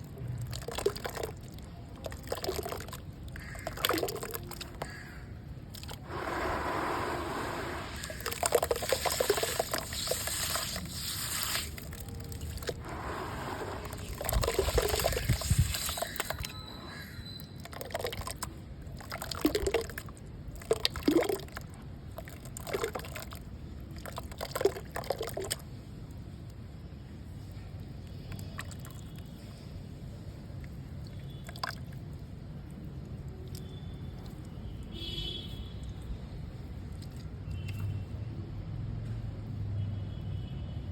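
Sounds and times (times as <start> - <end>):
water trickling: 0.0 - 25.6, 30.9 - 34.8.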